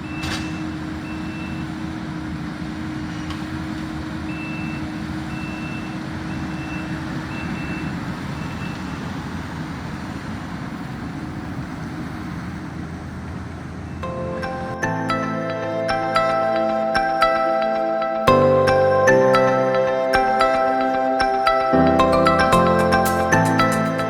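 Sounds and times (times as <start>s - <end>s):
backup alarm beeping: 0.0s - 9.2s
skid steer engine running: 0.0s - 14.8s.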